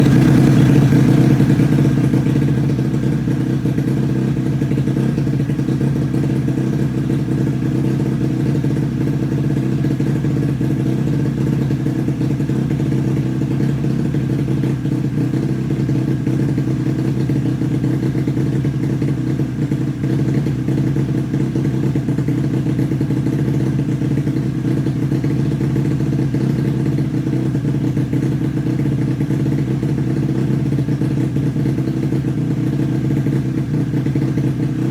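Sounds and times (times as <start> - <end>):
engine running steadily: 0.0 - 34.9.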